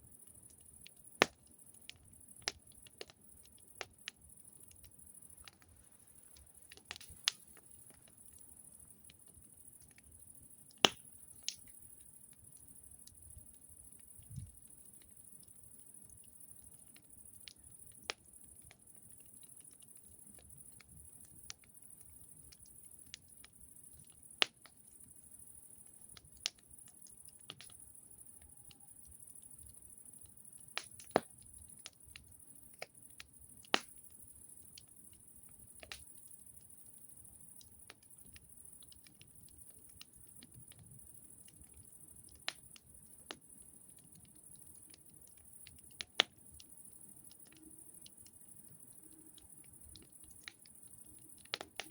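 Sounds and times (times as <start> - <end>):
wood fire crackling: 0.2 - 51.9.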